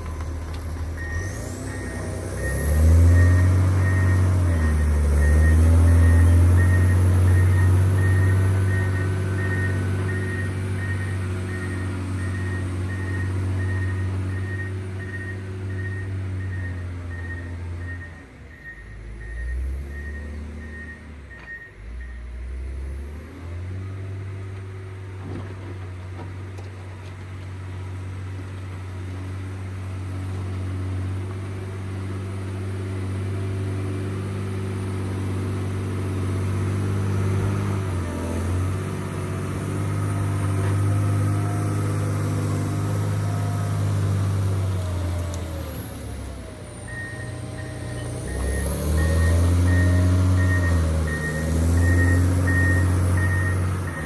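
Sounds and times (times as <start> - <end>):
diesel engine running under load: 0.0 - 54.0
backup alarm beeping: 0.9 - 22.2, 46.4 - 54.0.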